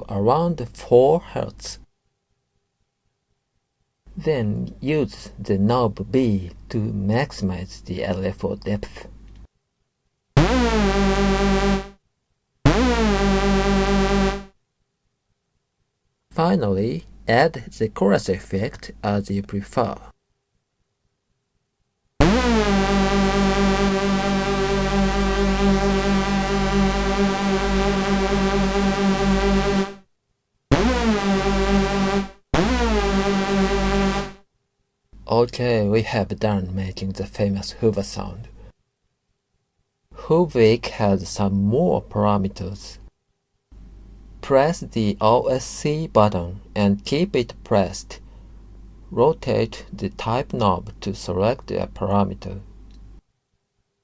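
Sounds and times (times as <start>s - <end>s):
synthesizer held notes wobbling: 10.4s - 12.0s, 12.7s - 14.5s, 22.2s - 30.0s, 30.7s - 34.4s.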